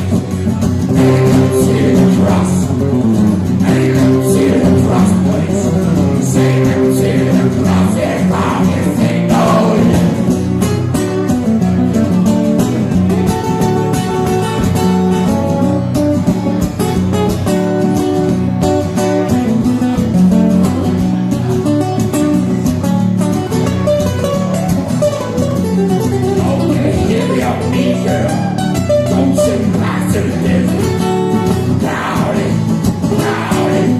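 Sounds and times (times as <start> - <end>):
guitar music: 0.0 - 33.9
person singing: 1.0 - 10.3, 29.1 - 33.9.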